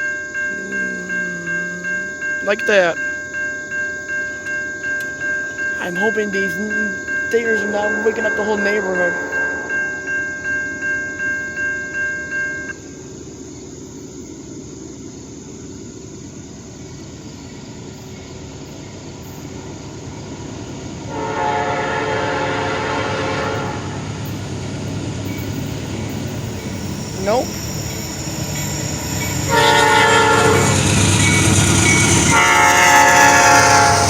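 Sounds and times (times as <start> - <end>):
crossing warning bell ringing: 0.0 - 13.0, 17.8 - 34.0
train rumble: 0.0 - 34.0
train horn: 21.1 - 24.4, 29.5 - 34.0.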